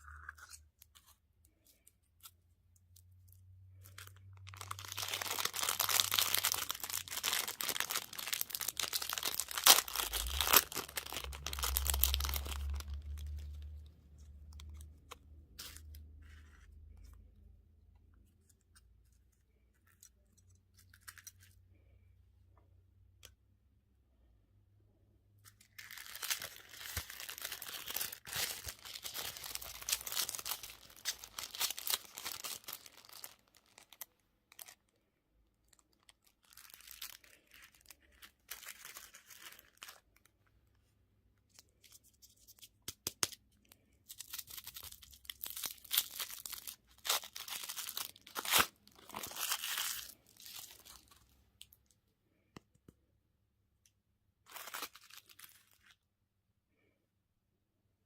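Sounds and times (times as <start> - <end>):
wrappers crinkling: 3.7 - 14.8, 25.5 - 35.0, 35.6 - 40.3, 43.7 - 51.7, 54.5 - 56.0.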